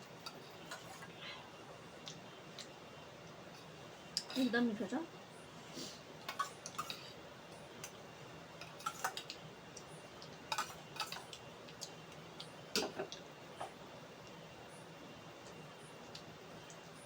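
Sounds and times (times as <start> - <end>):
chewing clicks and smacks: 2.0 - 3.4, 8.6 - 13.3, 15.4 - 16.9.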